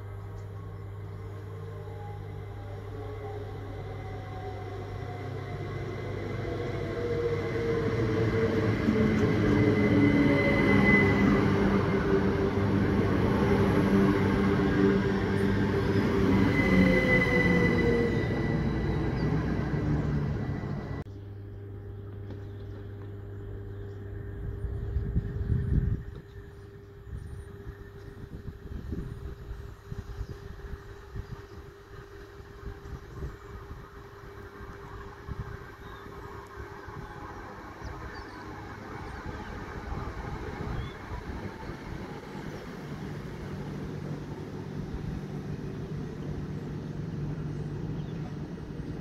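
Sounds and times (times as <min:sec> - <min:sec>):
electric train arriving: 0:00.0 - 0:21.1, 0:31.6 - 0:49.0
train motor whine: 0:00.6 - 0:21.0
high wheel squeal: 0:08.6 - 0:13.0, 0:14.2 - 0:21.0
steady low hum: 0:18.2 - 0:49.0.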